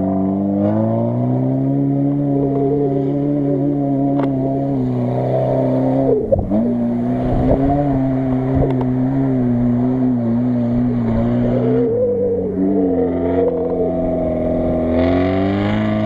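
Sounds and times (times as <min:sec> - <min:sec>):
suv engine running at high revs: 0:00.0 - 0:16.0.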